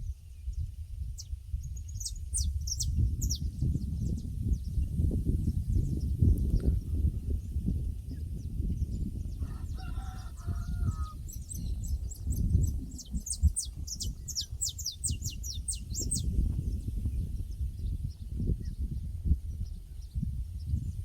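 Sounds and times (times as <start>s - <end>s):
small bird singing: 0.0s - 21.0s
rooster crowing: 9.4s - 11.2s.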